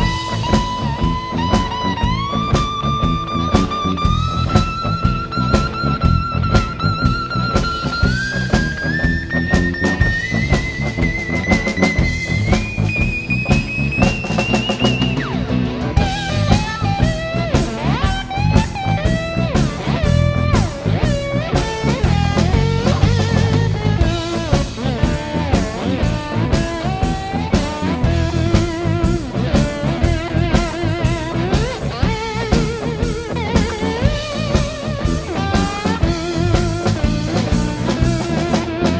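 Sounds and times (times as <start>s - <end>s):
bass guitar: 0.0s - 38.9s
drum kit: 0.0s - 38.9s
slide guitar solo: 0.0s - 38.9s.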